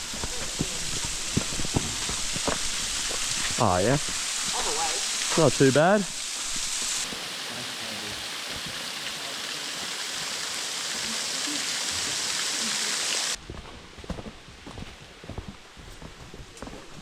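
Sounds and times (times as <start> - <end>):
rushing water hiss: 0.0 - 13.4.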